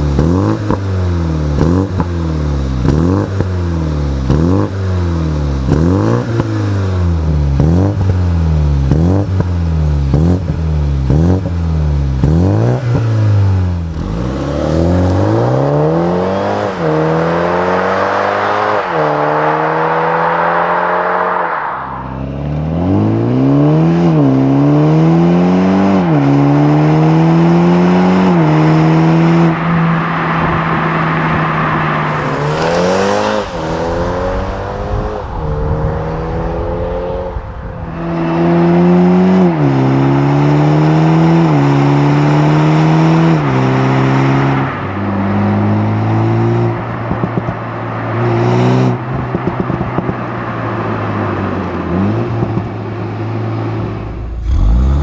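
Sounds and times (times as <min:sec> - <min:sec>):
car engine accelerating through upshifts: 0:00.2 - 0:29.6, 0:31.9 - 0:39.1, 0:53.7 - 0:55.0
exhaust crackles: 0:13.8 - 0:19.2, 0:32.0 - 0:38.4, 0:53.8 - 0:55.0.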